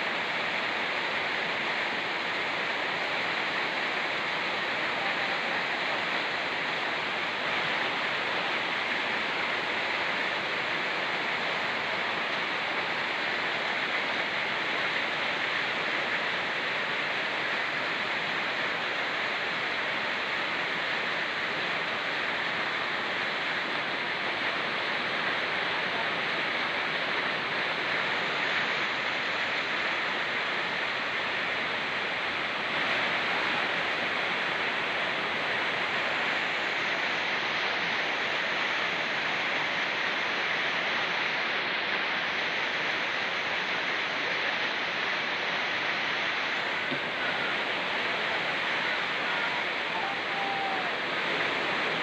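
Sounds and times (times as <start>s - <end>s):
rain falling: 0.0s - 52.0s
river rushing: 0.0s - 52.0s.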